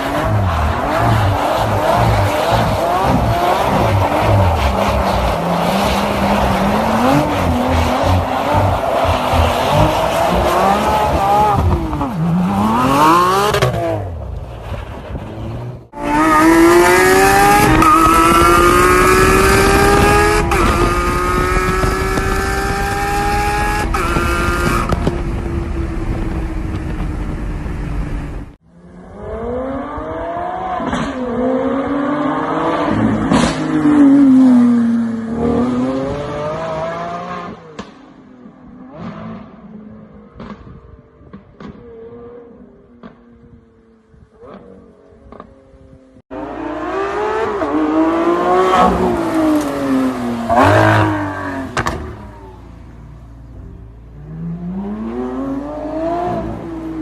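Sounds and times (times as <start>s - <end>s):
car accelerating hard: 16.0s - 28.4s.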